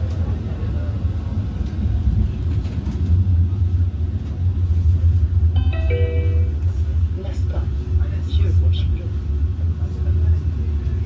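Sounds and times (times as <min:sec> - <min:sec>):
tram rumbling on rails: 0:00.0 - 0:11.0
multi-note chime: 0:05.6 - 0:06.6.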